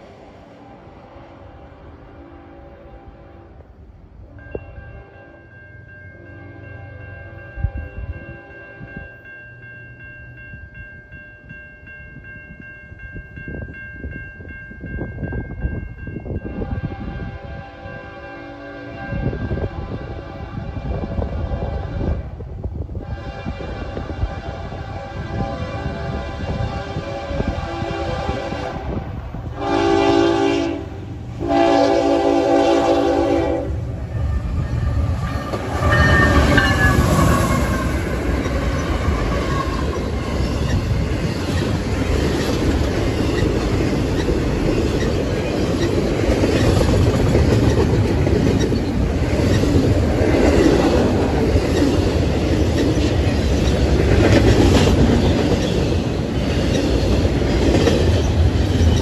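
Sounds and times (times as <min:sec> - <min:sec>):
freight train wheels rumbling on rails: 0:00.0 - 0:59.0
locomotive air horn blasts: 0:00.6 - 0:03.6, 0:16.5 - 0:22.4, 0:23.0 - 0:38.1.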